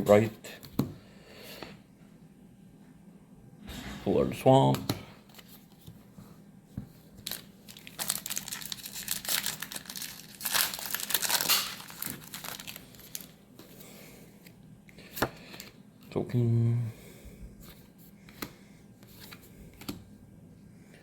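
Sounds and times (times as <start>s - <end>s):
foil wrapper crinkling and tearing: 7.2s - 13.4s.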